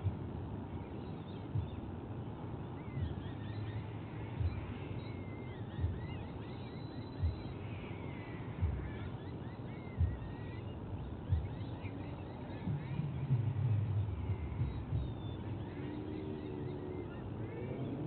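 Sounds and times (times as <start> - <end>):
faint bird chirps: 0.0 - 18.0
low outdoor rumble: 0.0 - 18.0
dull low thump: 1.5 - 1.9, 7.2 - 7.5, 8.6 - 9.0, 11.0 - 11.8, 12.6 - 15.5.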